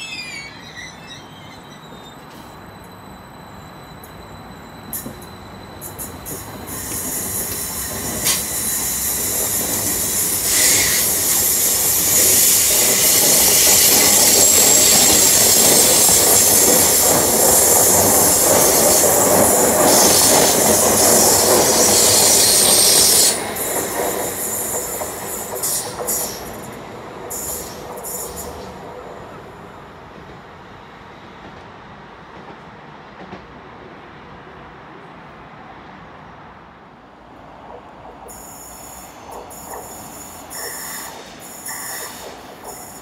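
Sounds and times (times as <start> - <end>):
high wheel squeal: 0.0 - 23.6, 38.3 - 43.0
train passing on track: 0.0 - 43.0.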